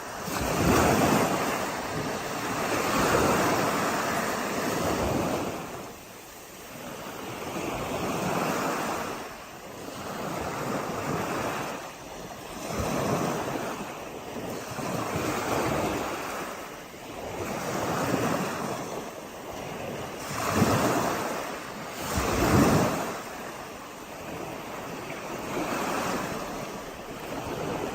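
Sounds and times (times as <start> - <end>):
waves washing on sandy beach: 0.0 - 27.9.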